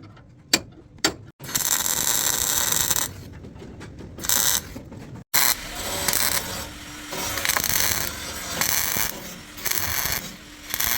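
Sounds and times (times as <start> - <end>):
loud rasping tool noise: 1.4 - 3.2, 4.2 - 4.8, 5.4 - 10.9.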